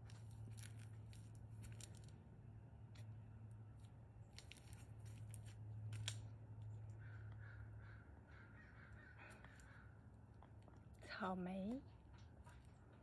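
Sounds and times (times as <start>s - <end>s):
low steady hum: 0.0s - 13.0s
faint drawn-out bird call: 7.0s - 10.0s.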